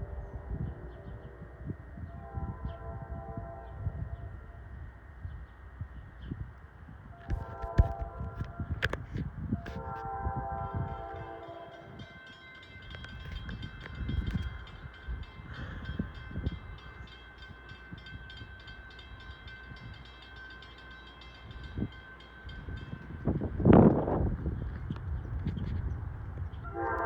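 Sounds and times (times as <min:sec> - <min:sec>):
train horn chord: 0:00.0 - 0:04.4, 0:07.2 - 0:08.7, 0:09.6 - 0:12.2, 0:26.6 - 0:27.0
wind on microphone: 0:00.0 - 0:12.1, 0:12.7 - 0:17.1, 0:21.5 - 0:27.0
train running with high whine: 0:00.0 - 0:27.0.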